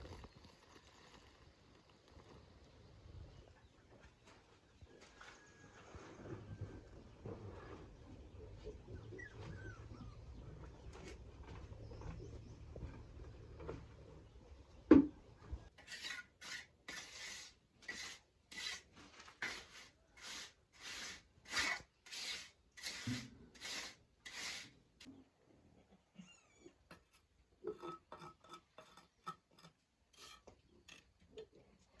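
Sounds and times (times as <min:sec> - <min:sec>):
hand saw cutting wood: 0:15.8 - 0:24.7.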